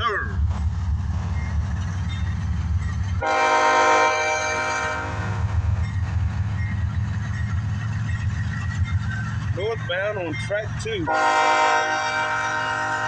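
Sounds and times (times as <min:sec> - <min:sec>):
diesel locomotives rumbling: 0:00.0 - 0:13.0
locomotive air horn blast: 0:03.2 - 0:05.6, 0:11.1 - 0:13.0.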